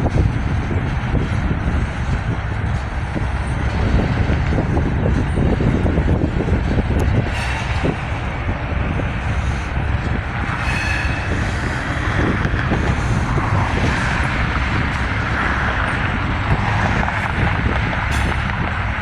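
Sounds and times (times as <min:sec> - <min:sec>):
train wheels rumbling on rail: 0:00.0 - 0:19.0
high wheel squeals: 0:07.0 - 0:19.0.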